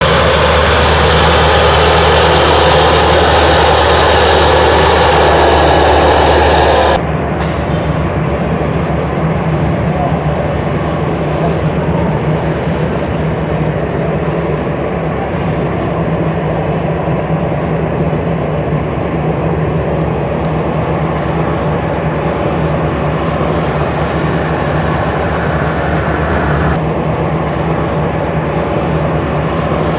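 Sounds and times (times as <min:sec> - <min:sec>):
loud rushing noise: 0:00.0 - 0:07.7, 0:22.2 - 0:26.8
heavy diesel engines running: 0:00.0 - 0:29.9.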